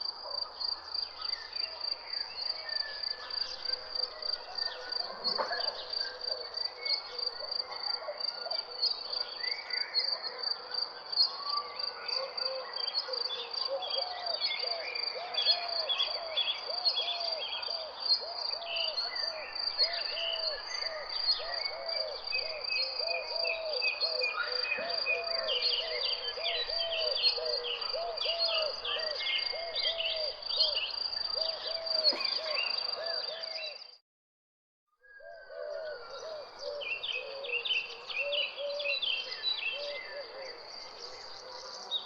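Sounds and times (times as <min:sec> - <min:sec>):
birds chirping: 0:26.0 - 0:33.5.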